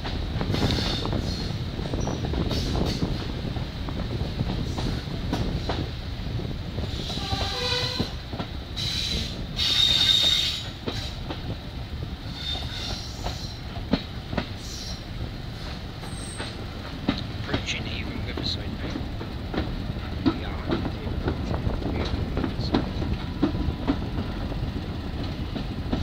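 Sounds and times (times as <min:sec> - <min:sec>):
rumble of wheels on rail: 0:00.0 - 0:26.0
train wheels squealing: 0:00.5 - 0:03.1, 0:08.8 - 0:11.2, 0:12.3 - 0:13.6, 0:14.5 - 0:16.6
clicks over rail joints: 0:15.7 - 0:24.3.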